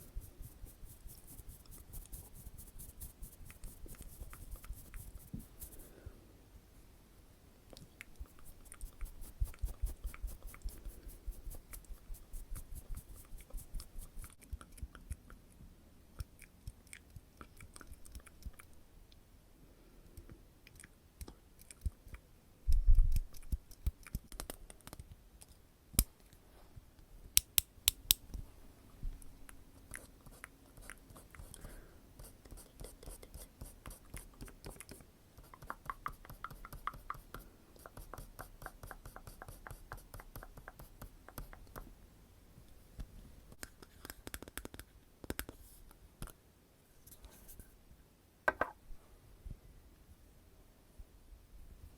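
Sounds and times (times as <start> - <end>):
wet mouth clicks: 16.2 - 18.7.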